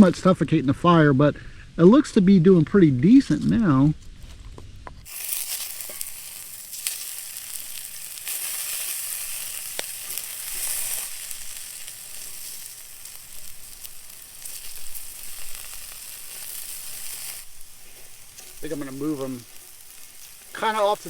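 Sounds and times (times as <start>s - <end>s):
oil popping: 5.0s - 21.0s
potatoes sizzling in hot oil: 5.0s - 21.0s.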